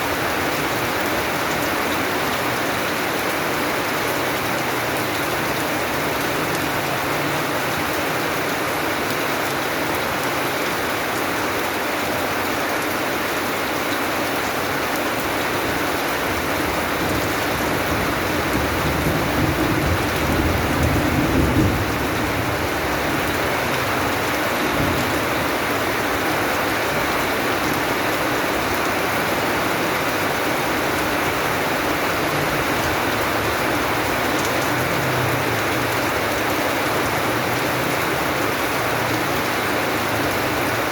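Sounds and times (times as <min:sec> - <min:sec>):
steady rain falling: 0:00.0 - 0:40.9
low thunder rumble: 0:17.8 - 0:23.3.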